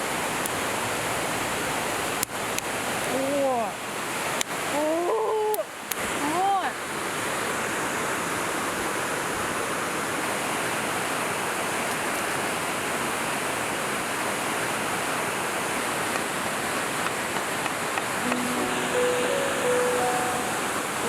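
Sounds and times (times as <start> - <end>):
river water rushing: 18.1 - 21.0
held music notes: 18.2 - 21.0.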